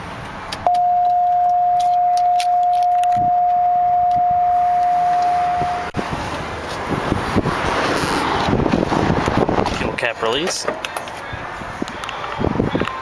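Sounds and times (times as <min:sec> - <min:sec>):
car warning beep: 0:00.7 - 0:06.0.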